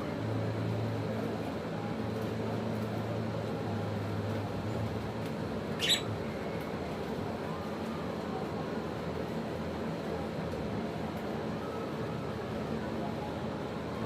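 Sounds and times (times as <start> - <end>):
bird squeak: 5.8 - 6.1.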